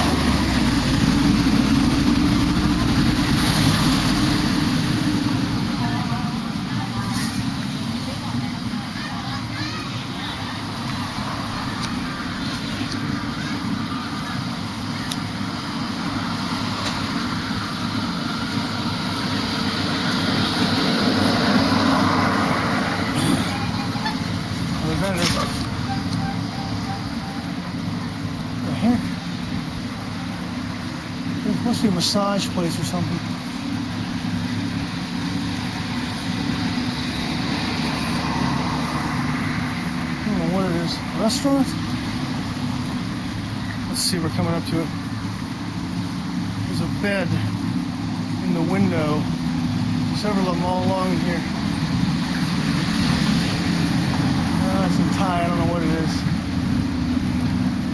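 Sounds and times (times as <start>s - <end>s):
road traffic: 0.0s - 57.9s
vehicle engine humming: 0.0s - 57.9s.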